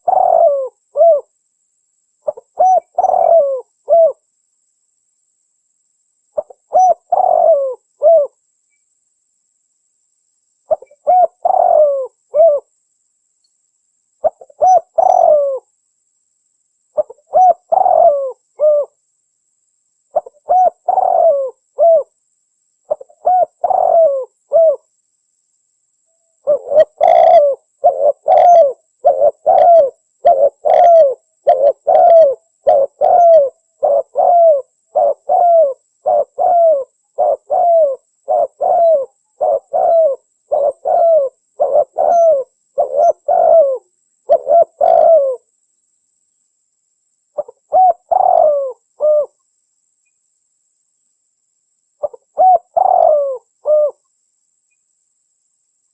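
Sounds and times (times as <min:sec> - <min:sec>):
dove cooing: 0:00.0 - 0:01.3, 0:02.2 - 0:04.2, 0:06.4 - 0:08.4, 0:10.7 - 0:12.7, 0:14.2 - 0:15.7, 0:17.0 - 0:19.0, 0:20.1 - 0:22.1, 0:22.9 - 0:24.8, 0:26.4 - 0:45.5, 0:47.4 - 0:49.4, 0:52.0 - 0:54.0.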